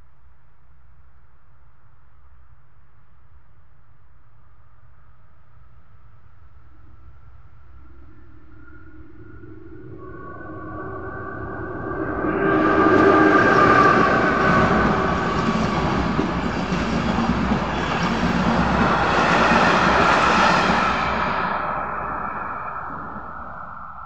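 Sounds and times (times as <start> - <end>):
train rumbling and clattering past: 9.9 - 24.0.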